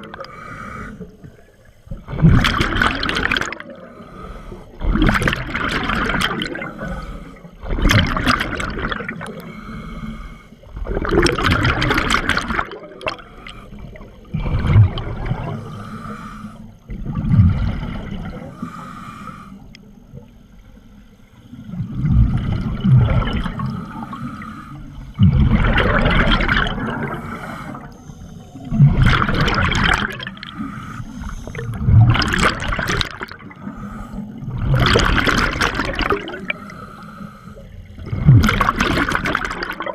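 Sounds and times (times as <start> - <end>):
exhaled bubbles underwater: 0.0 - 18.9, 19.6 - 39.9
diver inhaling through regulator: 0.1 - 1.4, 3.7 - 4.9, 6.4 - 7.6, 9.2 - 10.6, 13.1 - 14.1, 15.4 - 16.8, 18.3 - 19.9, 23.5 - 25.2, 26.8 - 29.0, 30.2 - 31.9, 33.5 - 34.8, 36.2 - 37.9.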